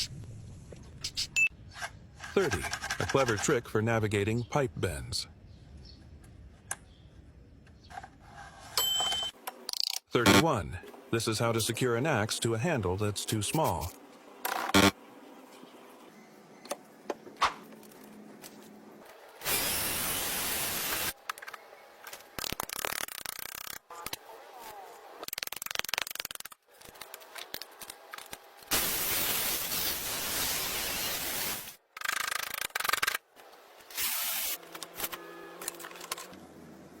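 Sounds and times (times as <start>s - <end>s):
bursts of hissing tool noise: 19.4s - 21.2s, 28.7s - 31.8s, 33.9s - 34.6s.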